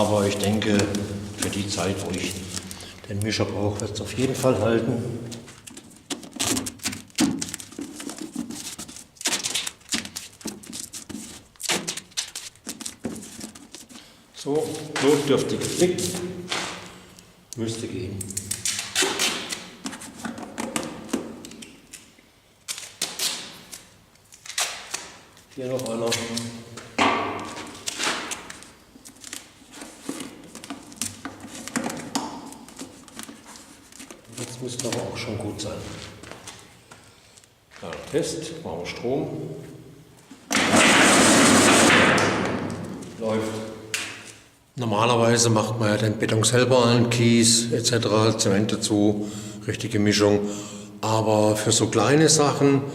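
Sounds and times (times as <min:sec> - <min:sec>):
tape crackling pressed on cover: 0:00.0 - 0:04.5, 0:05.2 - 0:14.1, 0:14.7 - 0:38.2
duct tape tearing off roll: 0:05.6 - 0:13.8, 0:18.2 - 0:22.1, 0:22.7 - 0:26.5, 0:40.5 - 0:42.9.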